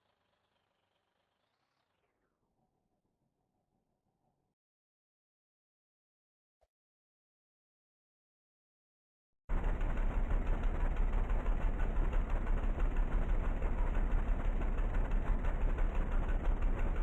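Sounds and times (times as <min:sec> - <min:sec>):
vehicle engine idling: 0:09.5 - 0:17.0.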